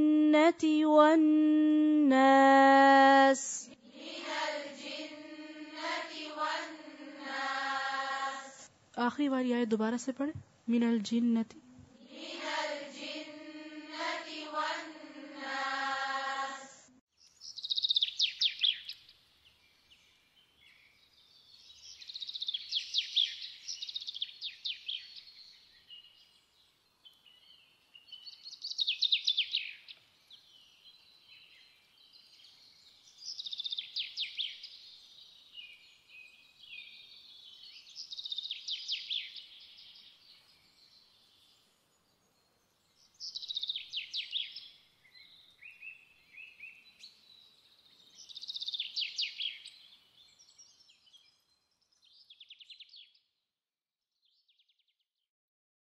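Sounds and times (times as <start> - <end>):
songbird singing with trills: 17.2 - 53.2.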